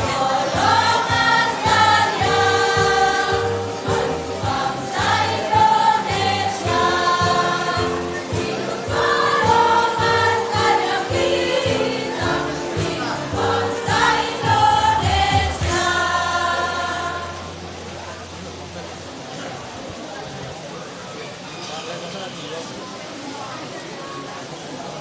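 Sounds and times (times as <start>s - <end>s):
rhythmic accompaniment: 0.0s - 17.5s
choir singing: 0.0s - 17.7s.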